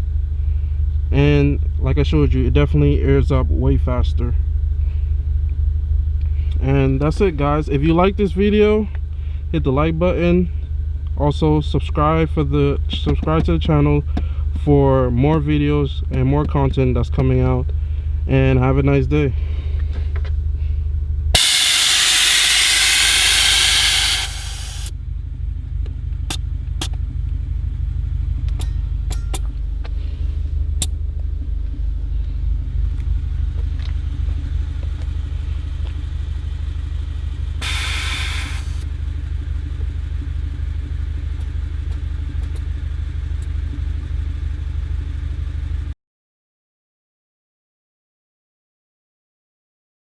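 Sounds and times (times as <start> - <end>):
low mechanical rumble: 0.0 - 46.0
loud rushing hiss: 21.4 - 24.9, 37.6 - 38.8.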